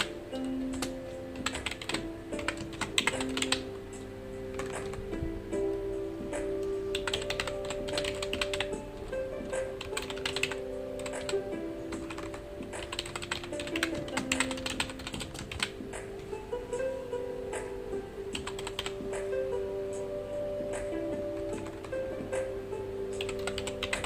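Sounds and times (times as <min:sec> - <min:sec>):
computer keyboard typing: 0:00.0 - 0:03.7, 0:04.5 - 0:05.2, 0:06.9 - 0:15.8, 0:18.4 - 0:19.0, 0:21.4 - 0:22.0, 0:23.2 - 0:24.0
soft background music: 0:00.0 - 0:24.0.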